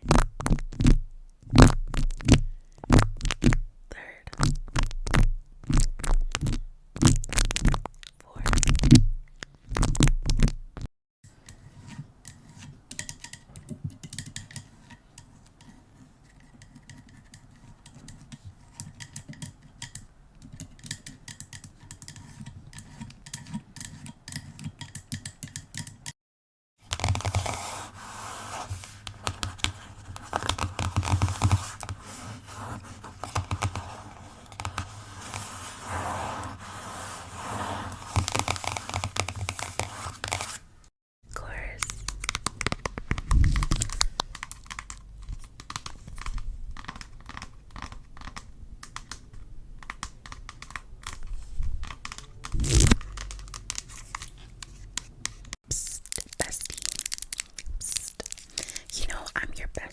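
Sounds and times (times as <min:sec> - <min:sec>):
scratching and tapping: 0:28.6 - 0:36.5, 0:37.4 - 0:40.6, 0:41.7 - 0:59.2.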